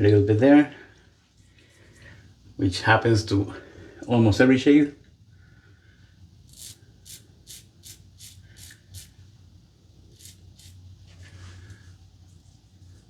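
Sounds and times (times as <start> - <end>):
razor scraping over skin: 6.5 - 9.2, 10.1 - 10.8.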